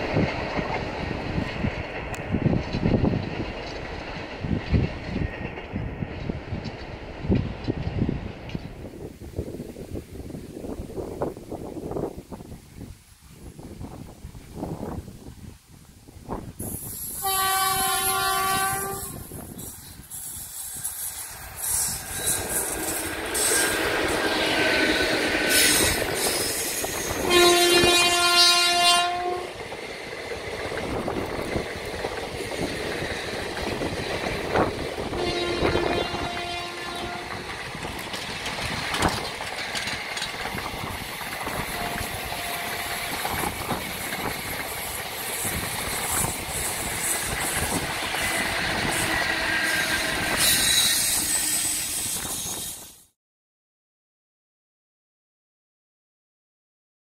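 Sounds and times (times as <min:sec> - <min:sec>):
train coaches rolling past: 0:00.0 - 0:12.8, 0:16.2 - 0:53.1
train horn: 0:17.2 - 0:19.4, 0:22.2 - 0:26.4, 0:27.0 - 0:29.6, 0:35.0 - 0:37.5, 0:41.6 - 0:43.4, 0:48.9 - 0:52.2.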